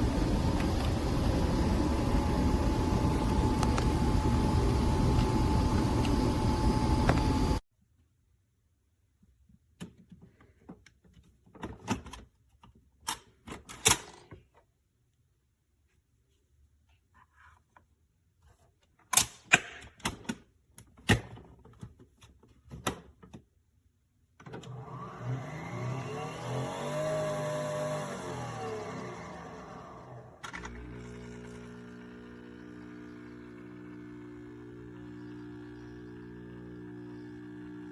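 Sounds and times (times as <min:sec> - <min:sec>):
small electric motor humming: 0:00.0 - 0:07.6, 0:24.8 - 0:37.9.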